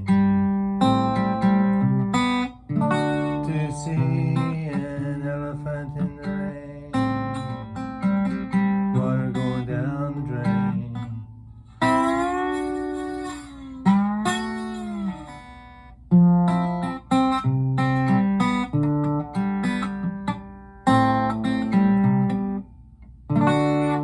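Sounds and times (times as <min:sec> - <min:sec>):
guitar playing bending notes: 0:00.0 - 0:24.0.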